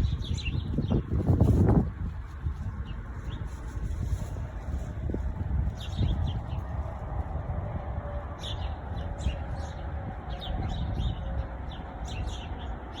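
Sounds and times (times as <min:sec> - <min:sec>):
steady low rumble: 0:00.0 - 0:13.0
birds chirping: 0:08.4 - 0:13.0.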